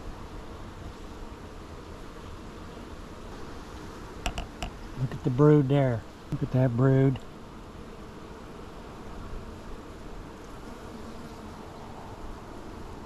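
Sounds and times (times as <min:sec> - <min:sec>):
honey bees buzzing: 0:00.0 - 0:13.0.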